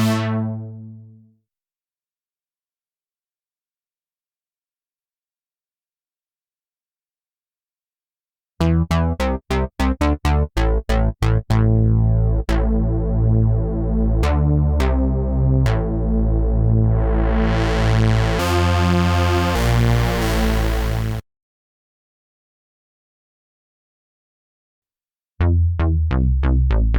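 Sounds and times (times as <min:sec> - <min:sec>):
synthesizer bass notes: 0:00.0 - 0:01.3, 0:08.6 - 0:21.2, 0:25.4 - 0:26.9.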